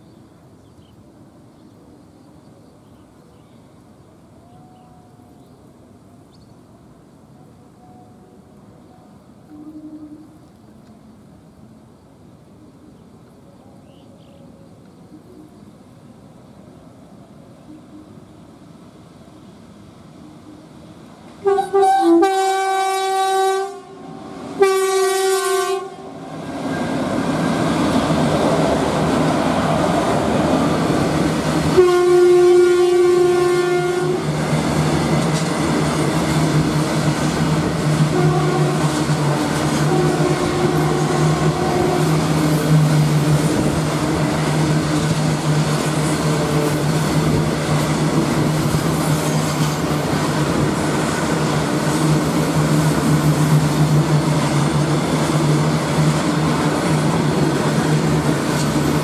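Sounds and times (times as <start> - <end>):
train rumbling past: 0.0 - 59.0
locomotive horn blasts: 9.5 - 10.3, 21.4 - 26.2, 31.7 - 34.3, 38.0 - 39.0, 39.7 - 42.2.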